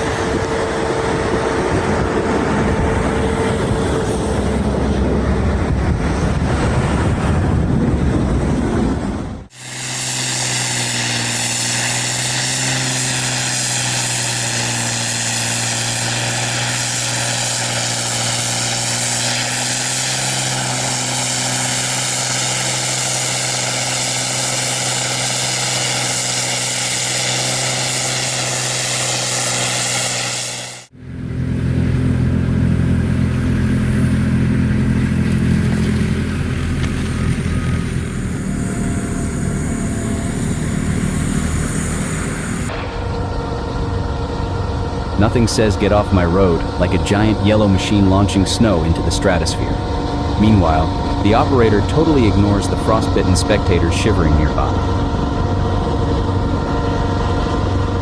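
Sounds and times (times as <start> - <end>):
deeper machine rumble: 0.0 - 58.0
snow-clearing machine engine: 0.0 - 58.0
high whine and hiss: 9.4 - 30.9.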